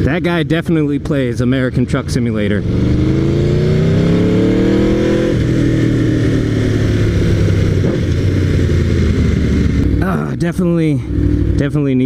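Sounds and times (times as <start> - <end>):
motorcycle engine revving: 0.0 - 12.0
wind rushing over microphone: 2.6 - 10.0.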